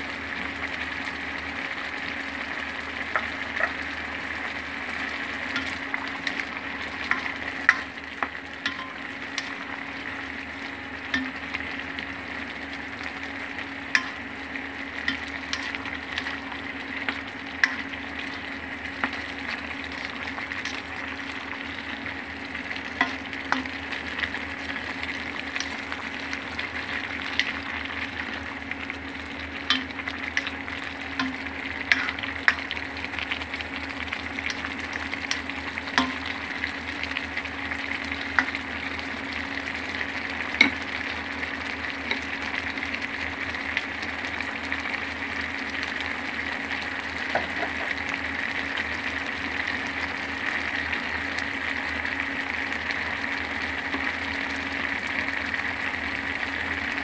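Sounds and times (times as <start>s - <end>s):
food sizzling in a hot pan: 0.0s - 57.0s
utensil tapping against pan: 7.1s - 9.6s, 47.3s - 48.0s.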